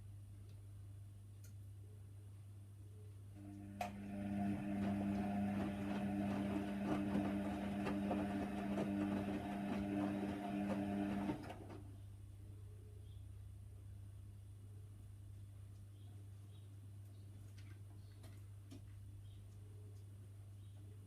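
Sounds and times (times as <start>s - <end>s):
low steady hum: 0.0s - 21.0s
washer dryer motor hum: 3.4s - 11.9s.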